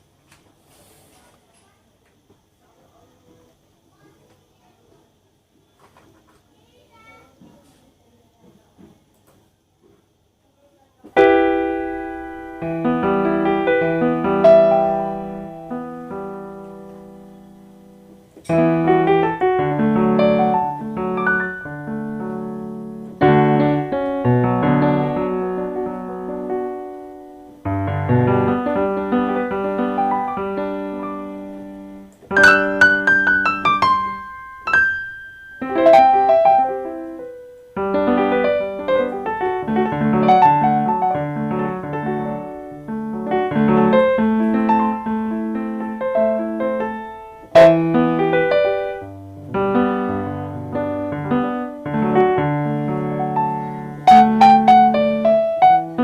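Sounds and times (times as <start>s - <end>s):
keyboard playing piano melody: 11.2s - 56.0s.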